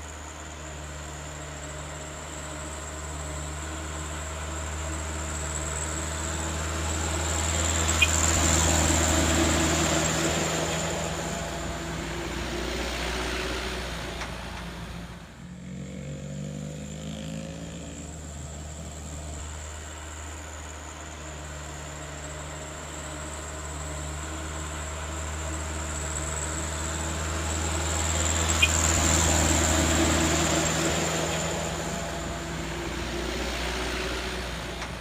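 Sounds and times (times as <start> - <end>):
heavy vehicle engine climbing: 0.0 - 15.6, 17.5 - 35.0
vehicle engine changing speed: 4.6 - 15.3, 24.5 - 35.0.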